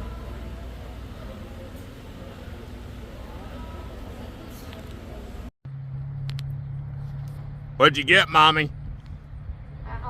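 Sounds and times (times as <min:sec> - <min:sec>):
vehicle running with low rumble: 0:05.7 - 0:10.0.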